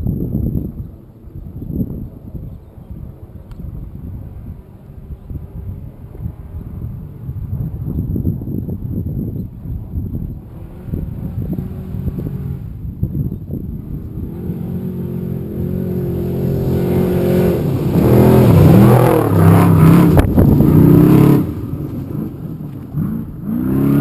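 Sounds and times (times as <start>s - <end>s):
truck engine revving loudly: 10.5s - 12.8s, 13.7s - 24.0s.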